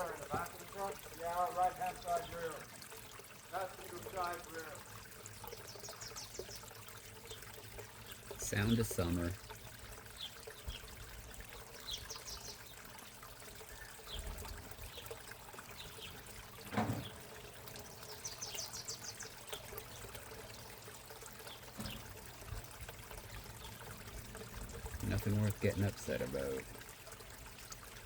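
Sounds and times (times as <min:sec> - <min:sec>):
pond water trickling: 0:00.0 - 0:28.0
short thump: 0:16.7 - 0:17.1.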